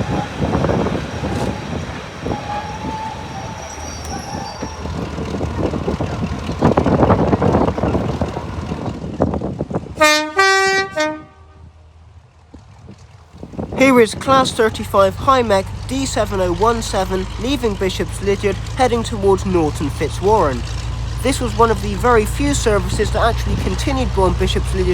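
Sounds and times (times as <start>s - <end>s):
diesel locomotive running: 0.0s - 24.9s
two-tone train horn: 10.0s - 11.8s.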